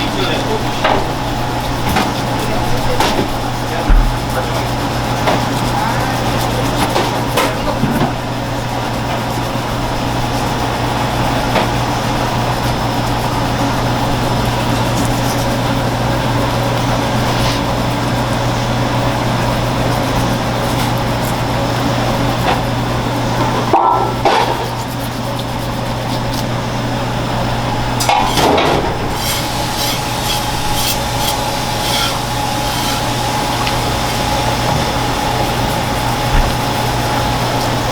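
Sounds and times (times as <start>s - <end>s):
steady mechanical hum: 0.0s - 37.9s.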